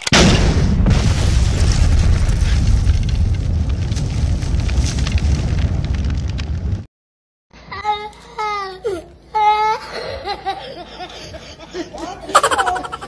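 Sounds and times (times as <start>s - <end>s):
crackles: 0.0s - 6.9s
explosion with low rumble: 0.1s - 6.9s.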